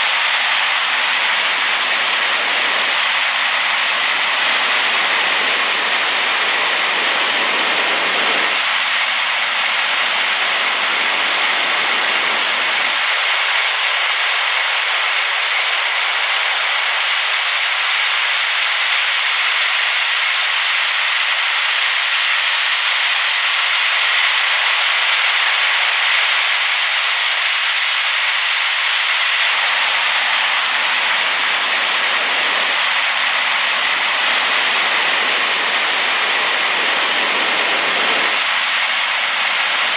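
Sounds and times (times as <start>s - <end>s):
waterfall roaring: 0.0s - 17.7s, 28.9s - 39.9s.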